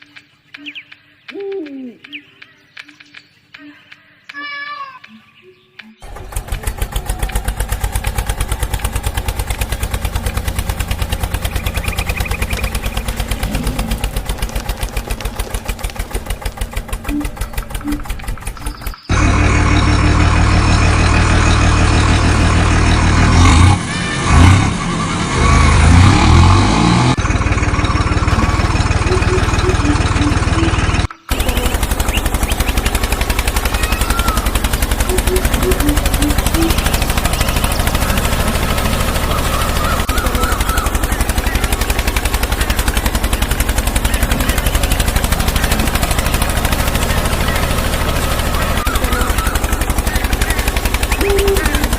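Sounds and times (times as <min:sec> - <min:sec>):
fast rattle of knocks: 0:06.0 - 0:19.0
motor running: 0:06.0 - 0:24.5, 0:25.3 - 0:51.9.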